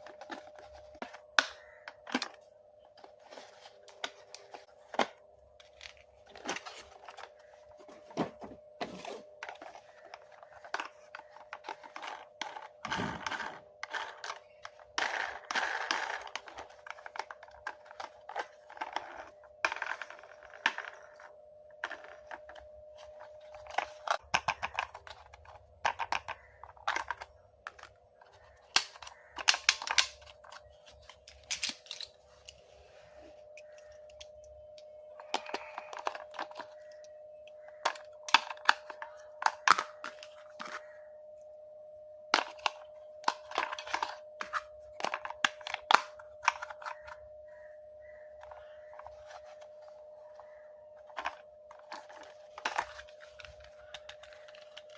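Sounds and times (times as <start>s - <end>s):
faint steady hum: 0.0s - 54.9s
plastic toy clicks and knocks: 23.5s - 30.6s, 35.2s - 40.8s, 42.3s - 47.2s
packaging rustling: 42.4s - 54.9s.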